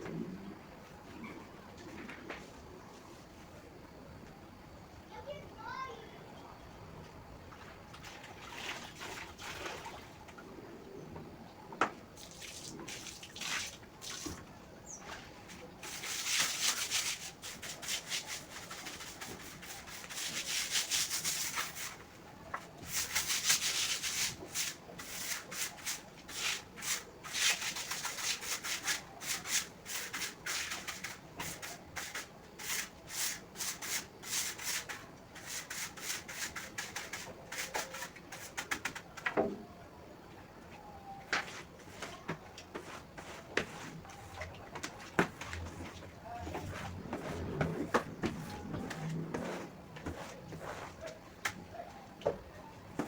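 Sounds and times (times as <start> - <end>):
floor scrubbing brush strokes: 15.0 - 22.1, 22.8 - 38.9, 41.4 - 51.6.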